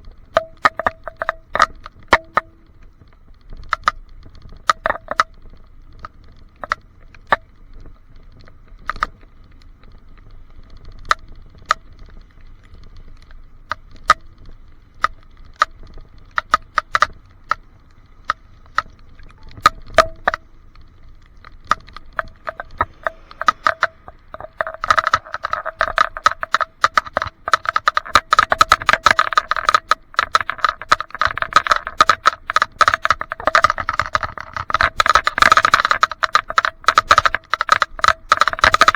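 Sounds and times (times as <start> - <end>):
clicks and rattles in plastic case: 21.7 - 38.9.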